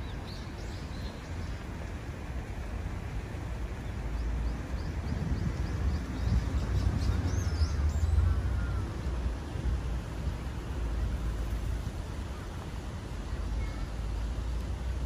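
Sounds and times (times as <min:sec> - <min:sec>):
small birds chirping: 0:00.0 - 0:01.8, 0:03.8 - 0:08.9
low rumble of city noise: 0:00.0 - 0:15.0.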